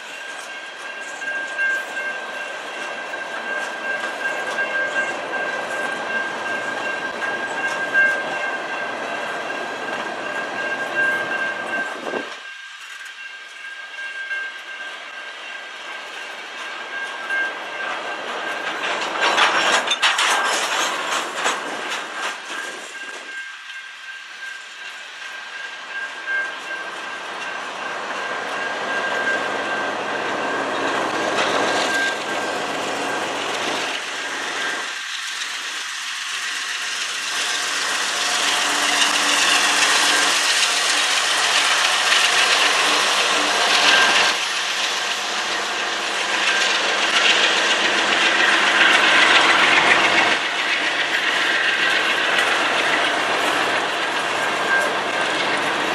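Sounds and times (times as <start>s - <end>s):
high ringing tone: 0.0s - 20.0s, 21.9s - 55.9s
train wheels rumbling on rails: 0.0s - 55.9s
wheel clicks over rail joints: 18.5s - 23.2s.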